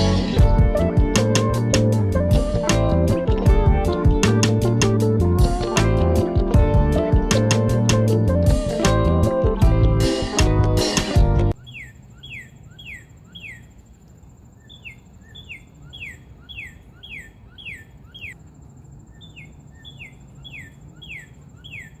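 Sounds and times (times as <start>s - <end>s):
songbird whistling: 11.6s - 13.7s, 14.6s - 18.4s, 19.1s - 22.0s.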